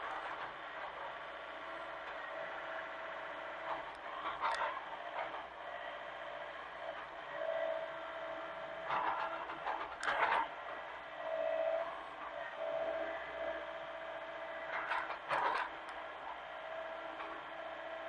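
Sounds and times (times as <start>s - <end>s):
mini excavator running: 0.0s - 18.0s
machine clatter: 3.6s - 5.5s, 8.8s - 10.6s, 14.6s - 17.6s.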